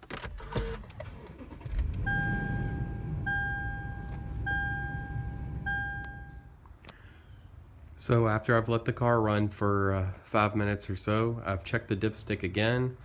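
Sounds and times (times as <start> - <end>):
car engine starting and idling: 0.0 - 6.7
dashboard warning chime: 2.0 - 6.6.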